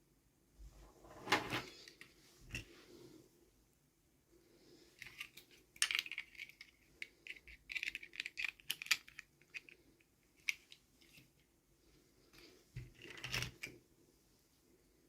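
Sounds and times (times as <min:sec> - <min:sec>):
plastic toy pieces clicking: 0:05.0 - 0:09.8.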